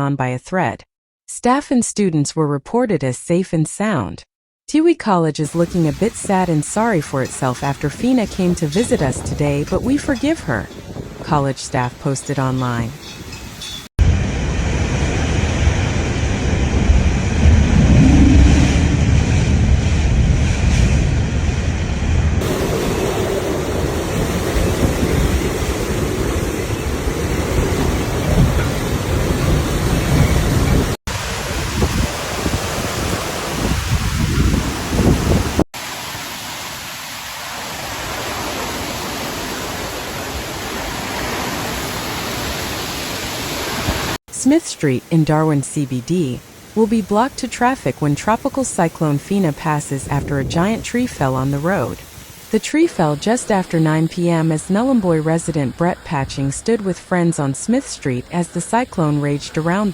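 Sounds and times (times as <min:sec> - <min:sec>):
rain and wind hiss: 0:05.5 - 0:11.2, 0:22.4 - 0:44.2, 0:45.9 - 0:55.6
strong wind on microphone: 0:08.3 - 0:11.3, 0:14.0 - 0:35.6.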